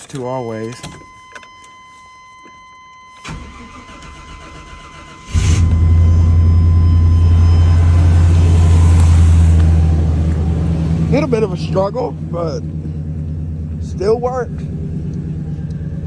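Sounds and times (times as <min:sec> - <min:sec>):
electronic warning tone: 0:00.3 - 0:09.8
truck engine starting and idling: 0:03.2 - 0:16.0.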